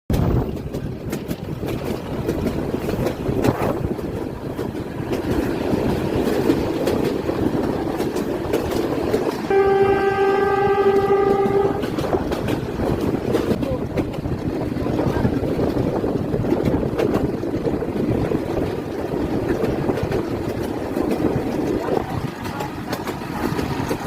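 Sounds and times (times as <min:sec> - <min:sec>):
train rumbling: 0:00.1 - 0:24.0
train horn blast: 0:09.4 - 0:12.1.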